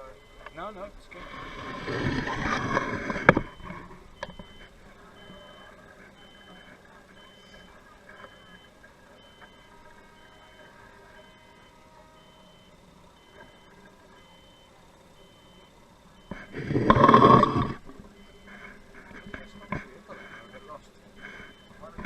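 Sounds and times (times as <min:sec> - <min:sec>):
electronic warning beep: 0:00.0 - 0:22.0.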